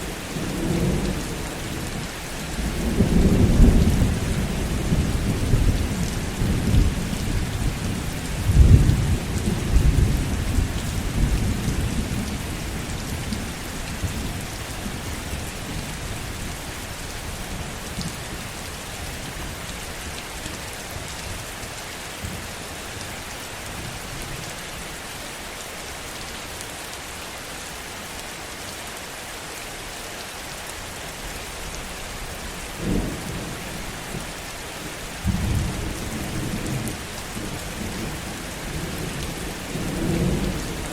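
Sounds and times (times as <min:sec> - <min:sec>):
heavy rain falling: 0:00.0 - 0:40.9
thunder rumbling: 0:35.2 - 0:40.9.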